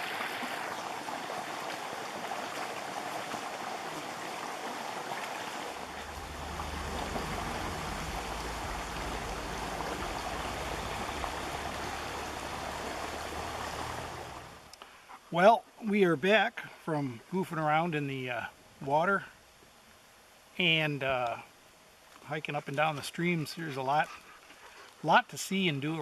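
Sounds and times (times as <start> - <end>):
stream rushing over rocks: 0.0 - 14.7
low rumble: 5.9 - 14.7.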